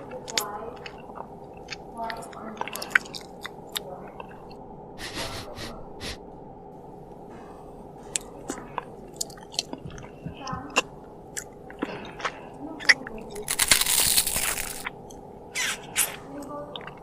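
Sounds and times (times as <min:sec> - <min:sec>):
wet chewing with lip smacks: 0:00.2 - 0:04.6, 0:08.1 - 0:13.7
crackling crunch: 0:07.3 - 0:16.2
mouth clicks: 0:08.2 - 0:13.4.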